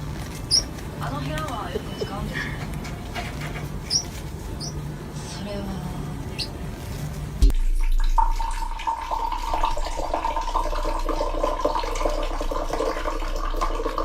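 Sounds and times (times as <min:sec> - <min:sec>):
constant hum: 0:00.0 - 0:14.0
running water: 0:07.4 - 0:14.0.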